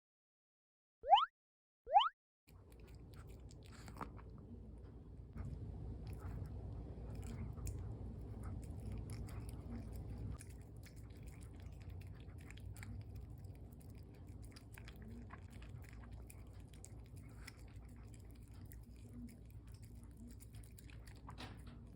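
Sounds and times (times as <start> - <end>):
dog chewing: 2.5 - 4.6, 5.4 - 21.9
low steady hum: 2.5 - 21.9.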